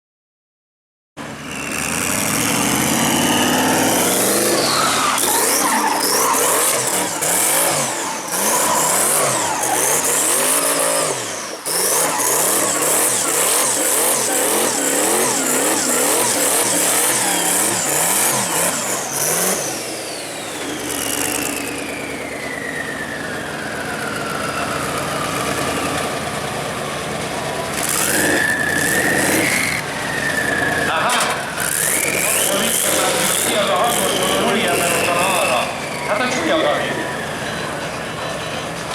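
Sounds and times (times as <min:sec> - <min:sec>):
car engine revving hard: 0:01.2 - 0:38.9
tyres screeching: 0:01.5 - 0:38.9.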